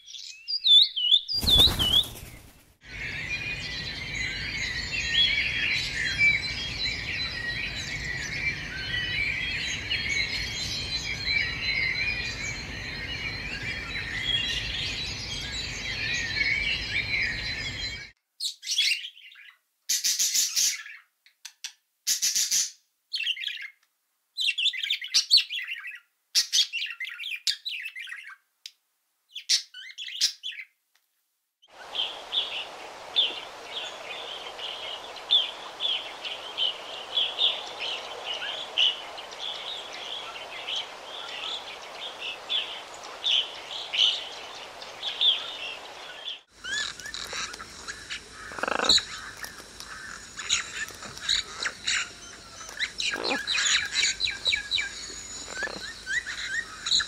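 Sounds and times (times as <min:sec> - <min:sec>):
birds chirping: 0:00.0 - 0:18.1, 0:31.7 - 0:57.0
background hiss: 0:01.3 - 0:18.0, 0:31.7 - 0:57.0.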